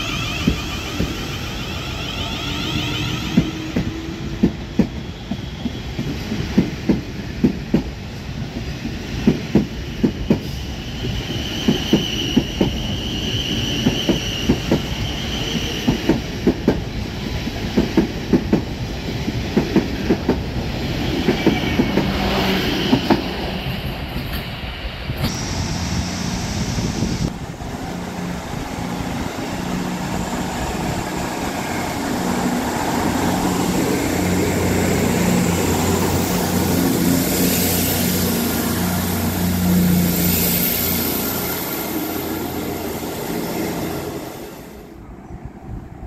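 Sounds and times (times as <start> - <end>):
high wheel squeal: 0.0 - 6.0, 10.1 - 16.0
train rumble: 0.0 - 46.0.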